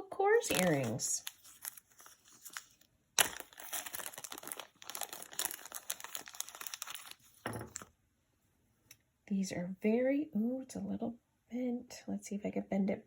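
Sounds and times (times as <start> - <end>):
packaging crinkling and rustling: 0.4 - 7.9.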